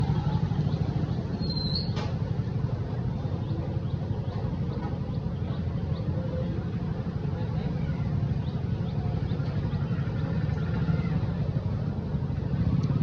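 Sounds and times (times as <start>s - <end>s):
motorcycle engine idling: 0.0s - 13.0s
rising high-pitched chirp: 1.4s - 2.0s.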